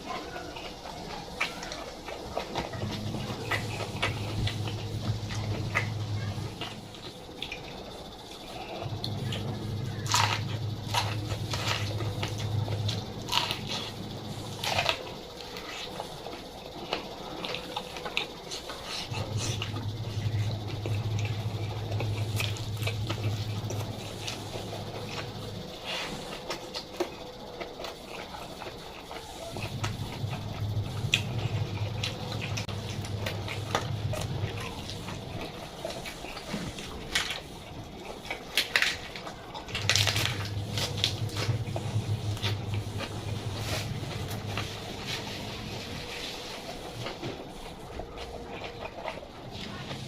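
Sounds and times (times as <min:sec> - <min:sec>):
low hum: 0:00.0 - 0:50.0
person chewing with crunches: 0:00.0 - 0:50.0.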